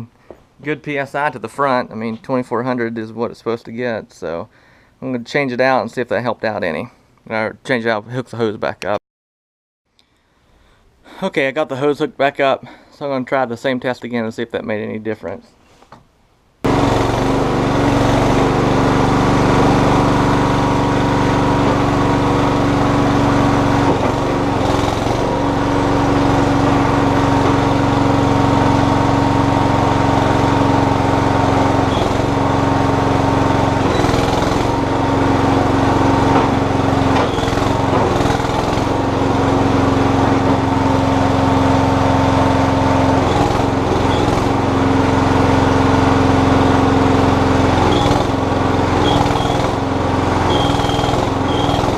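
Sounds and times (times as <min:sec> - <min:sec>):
backhoe engine running: 0:16.6 - 0:51.9.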